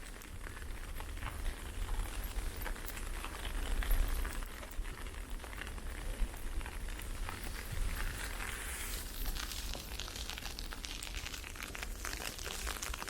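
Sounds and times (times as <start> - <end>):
wind rumble on microphone: 0.0 - 12.0
ice pellets ticking: 0.0 - 13.0.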